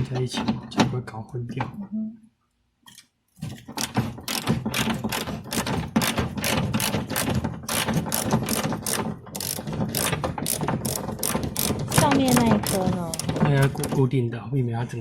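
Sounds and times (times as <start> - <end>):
hand ratchet clicking: 3.7 - 13.9.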